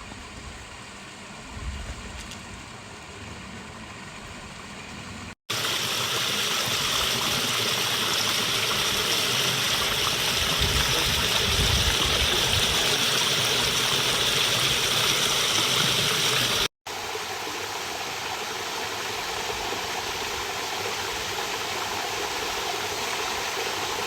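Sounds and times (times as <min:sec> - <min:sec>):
torrent water rushing: 0:05.5 - 0:24.0.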